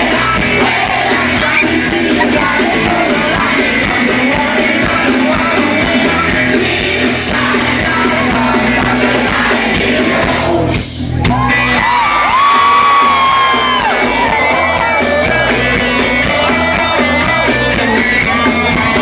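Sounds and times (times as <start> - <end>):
live rock band with singing: 0.0 - 19.0
crowd whooping and whistling: 1.2 - 2.6, 11.1 - 19.0.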